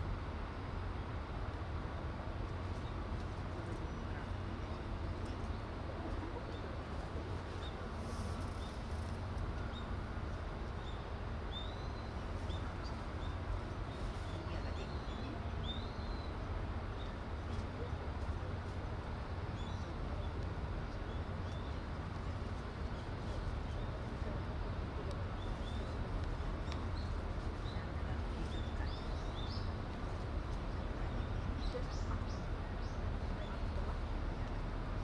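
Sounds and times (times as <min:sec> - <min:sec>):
low background rumble: 0:00.0 - 0:35.0
small birds chirping: 0:10.7 - 0:17.8, 0:25.3 - 0:34.1.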